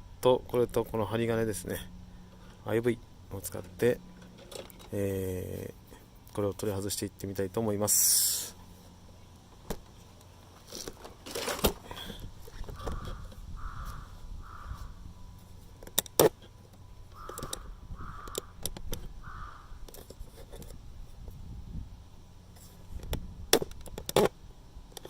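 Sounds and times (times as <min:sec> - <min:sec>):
crow cawing: 0:12.7 - 0:15.0, 0:17.2 - 0:18.6, 0:19.2 - 0:19.8.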